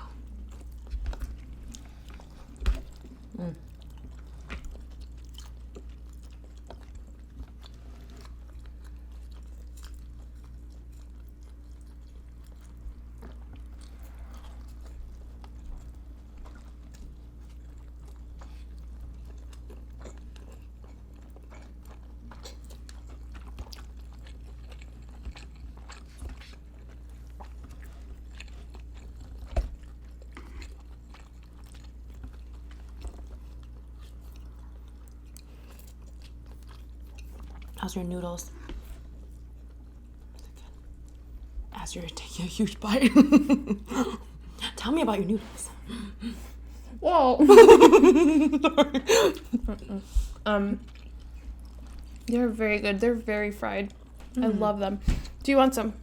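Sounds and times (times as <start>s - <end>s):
chewing and biting food: 0.0s - 42.5s, 48.6s - 52.6s
steady low hum: 0.0s - 56.0s.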